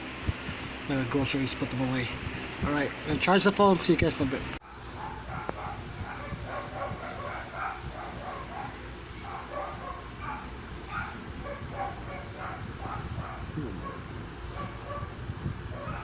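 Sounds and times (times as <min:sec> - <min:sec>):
dog yipping and barking: 0:04.6 - 0:16.0.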